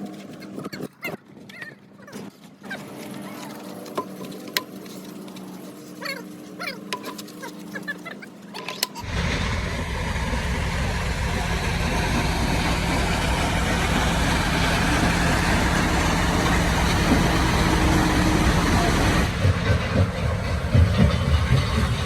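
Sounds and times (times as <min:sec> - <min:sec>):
engine running loudly: 0:09.0 - 0:22.0.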